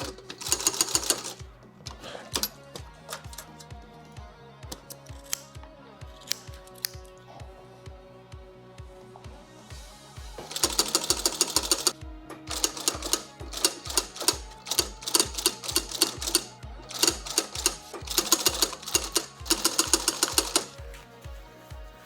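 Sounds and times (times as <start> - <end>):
sewing machine stitching: 0.0 - 3.5, 10.5 - 20.9
background music with beat: 0.0 - 22.0.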